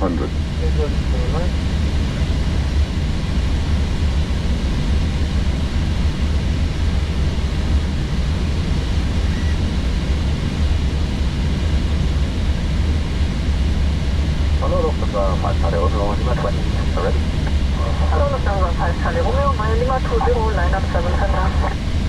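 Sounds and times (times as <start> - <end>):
engine and airflow rumble: 0.0 - 22.0.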